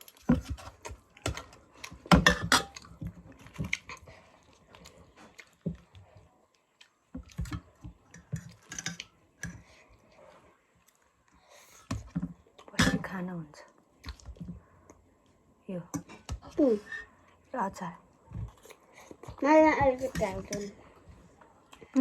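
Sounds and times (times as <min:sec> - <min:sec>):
chewing: 0:00.0 - 0:12.8, 0:13.6 - 0:15.4, 0:18.1 - 0:22.0.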